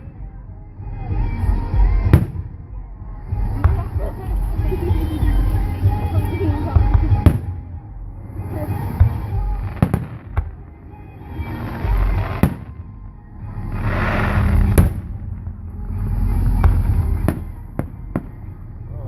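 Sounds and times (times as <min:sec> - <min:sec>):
low rolling booms: 0:00.0 - 0:10.8, 0:11.4 - 0:18.9
firework crackle: 0:08.4 - 0:12.9, 0:13.5 - 0:18.7.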